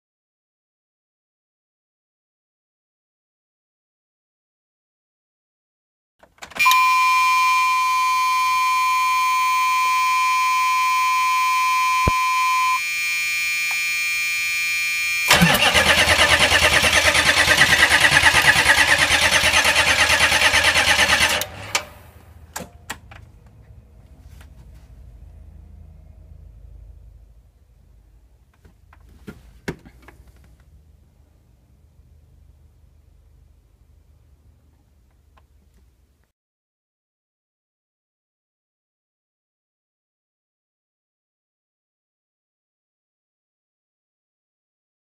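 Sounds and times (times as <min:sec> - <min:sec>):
steady electronic tone: 0:06.7 - 0:15.4
starter cranking engine: 0:15.3 - 0:21.9.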